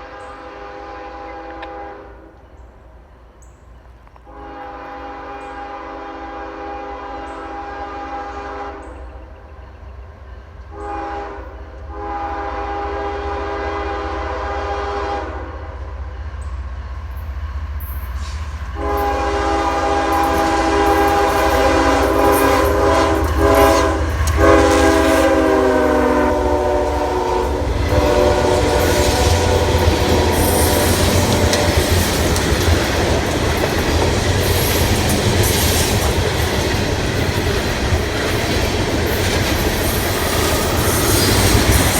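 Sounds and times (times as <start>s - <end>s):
locomotive air horn blasts: 0.0s - 2.4s, 4.2s - 9.0s, 10.7s - 15.7s, 18.2s - 32.5s
locomotive engines rumbling: 2.3s - 41.9s
train wheels clattering over rail joints: 17.8s - 25.8s, 26.7s - 41.9s.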